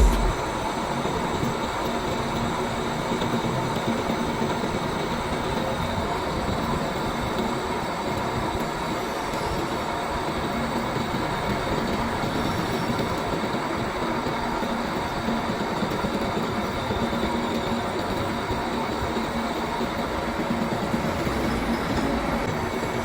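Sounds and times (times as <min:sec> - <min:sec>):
cnc machine cutting: 0:00.0 - 0:00.5.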